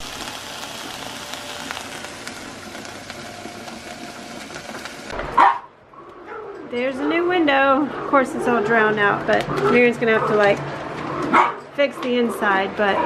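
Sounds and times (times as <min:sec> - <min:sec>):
ground beef sizzling: 0:00.0 - 0:05.4.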